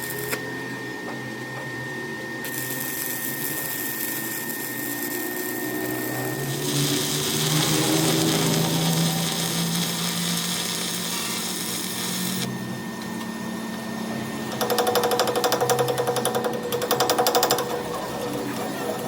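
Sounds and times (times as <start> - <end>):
power tool hissing: 2.5 - 12.5
fast buzzing rattle: 14.5 - 18.2.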